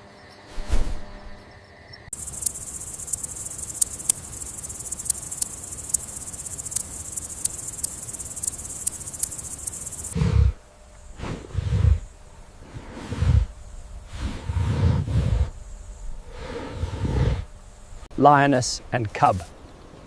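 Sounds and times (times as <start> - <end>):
high-pitched insect trilling: 2.1 - 10.2.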